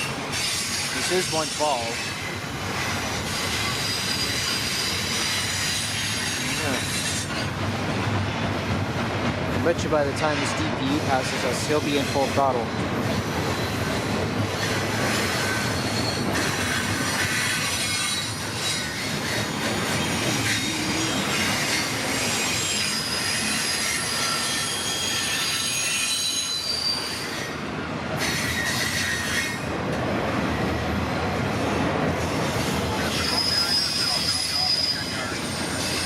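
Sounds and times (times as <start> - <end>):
train wheels rumbling on rails: 0.0 - 36.0
high-pitched wheel squeal: 2.8 - 7.4, 14.6 - 27.6, 28.2 - 29.7, 33.0 - 36.0.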